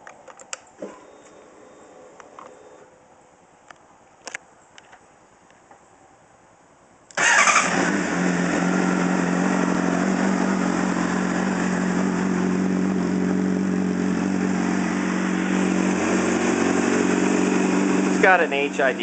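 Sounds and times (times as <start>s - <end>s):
motorcycle engine starting and idling: 7.1s - 19.0s.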